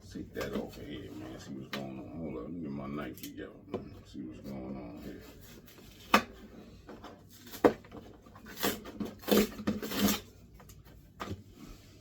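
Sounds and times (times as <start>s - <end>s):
knife cutting through cardboard: 8.3s - 10.3s.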